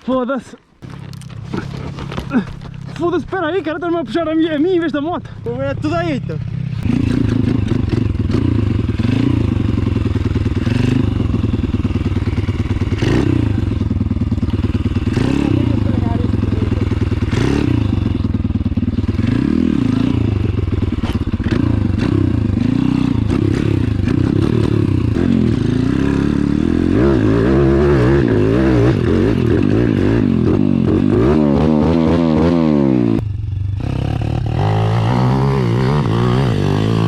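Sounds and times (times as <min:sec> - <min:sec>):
pit bike engine revving: 0:00.8 - 0:37.0.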